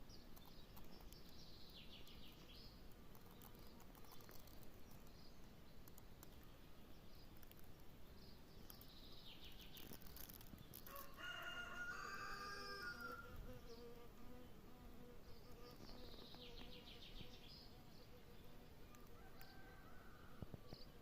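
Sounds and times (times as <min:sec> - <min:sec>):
insects buzzing: 0:00.0 - 0:21.0
rooster crowing: 0:10.8 - 0:13.3, 0:19.1 - 0:20.5
birds chirping: 0:15.2 - 0:21.0.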